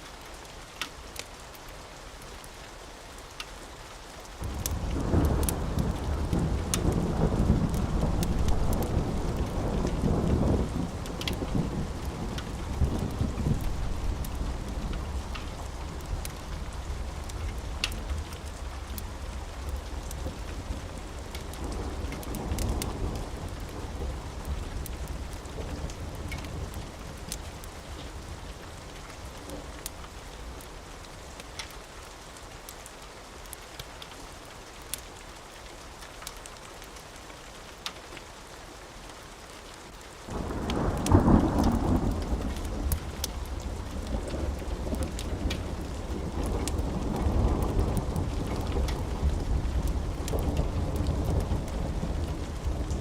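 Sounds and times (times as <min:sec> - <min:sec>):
steady rain: 0:00.0 - 0:53.0
wood fire crackling: 0:03.2 - 0:37.1, 0:39.9 - 0:53.0
thunder rumbling: 0:04.4 - 0:28.6, 0:40.3 - 0:53.0.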